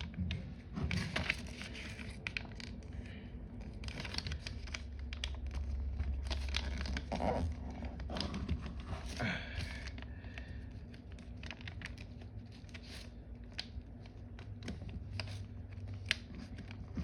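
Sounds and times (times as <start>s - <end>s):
paper rustling and crinkling: 0.0s - 17.0s
steady low hum: 0.0s - 17.0s
fingers scraping paper creases: 6.3s - 9.2s.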